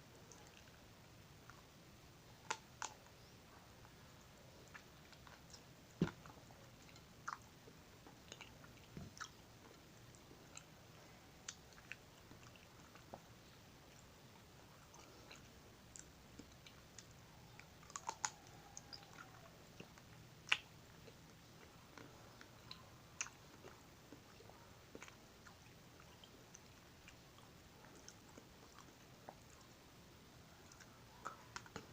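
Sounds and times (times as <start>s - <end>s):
crunchy chewing of ice cream: 0.1s - 29.9s, 30.5s - 31.9s
wet mouth clicks: 14.9s - 21.2s.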